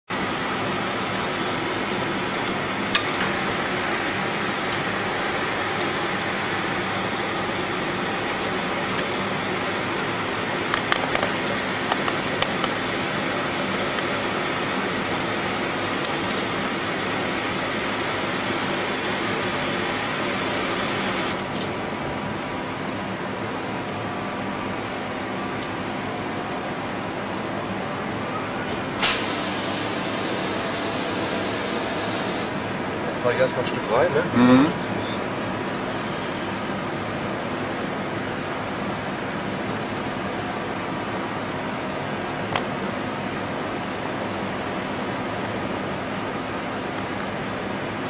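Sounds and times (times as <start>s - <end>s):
lathe humming and hissing: 0.1s - 48.0s
short loud hiss: 29.0s - 32.5s.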